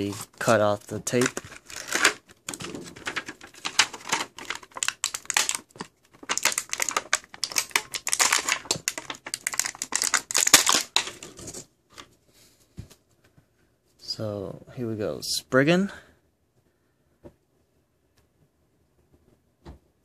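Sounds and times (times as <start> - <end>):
packaging crinkling and clicking: 0.9 - 12.1.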